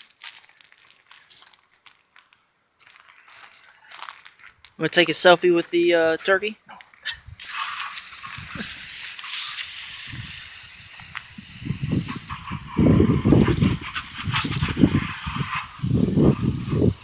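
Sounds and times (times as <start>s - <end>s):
wind buffeting microphone: 7.2s - 7.5s, 8.2s - 8.7s, 10.1s - 17.0s.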